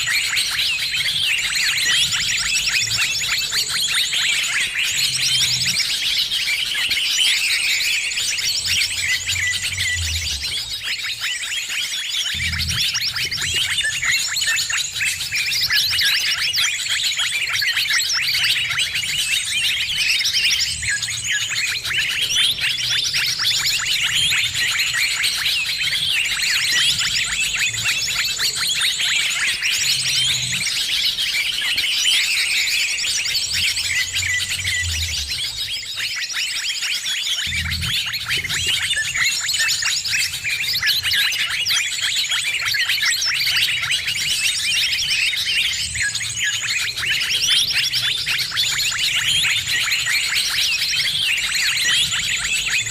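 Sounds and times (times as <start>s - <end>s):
many small birds chirping: 0.0s - 52.9s.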